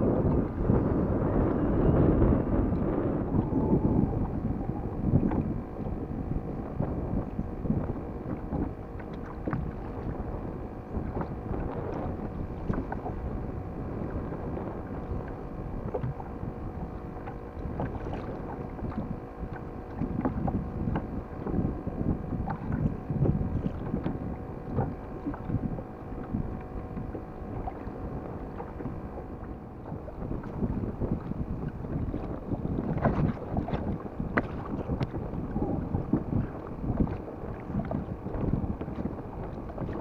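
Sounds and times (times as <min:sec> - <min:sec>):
water rumbling around hull: 0:00.0 - 0:40.0
wind buffeting microphone: 0:00.0 - 0:40.0.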